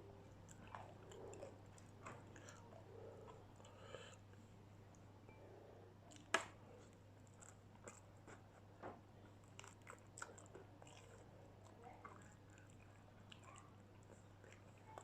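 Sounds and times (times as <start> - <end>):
person chewing crispy food: 6.1 - 15.0.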